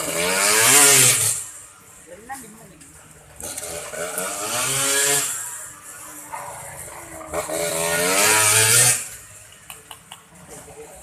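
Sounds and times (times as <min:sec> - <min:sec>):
motorcycle engine revving: 0:00.0 - 0:01.6, 0:03.3 - 0:09.4.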